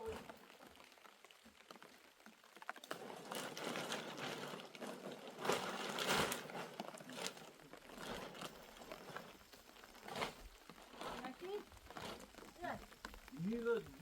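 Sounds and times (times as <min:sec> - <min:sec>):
rustling and crackling: 0:00.0 - 0:14.0.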